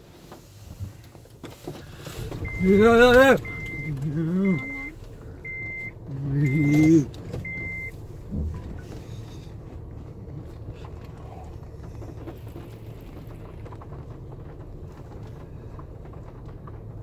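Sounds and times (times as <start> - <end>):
car idling hum: 0.0 - 17.0.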